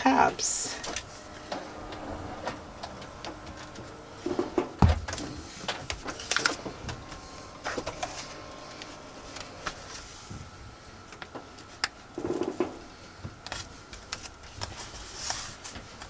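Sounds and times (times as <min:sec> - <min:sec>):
dull thump: 0:04.3 - 0:06.1.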